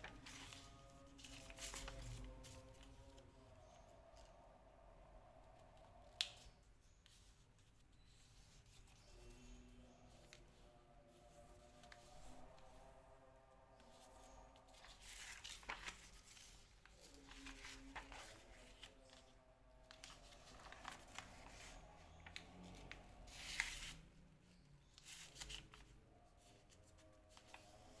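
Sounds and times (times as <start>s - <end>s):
paper crease stroke: 0.0s - 3.1s, 13.8s - 28.0s
paper rustling and crinkling: 0.0s - 4.4s, 13.8s - 28.0s
faint background music: 0.0s - 28.0s.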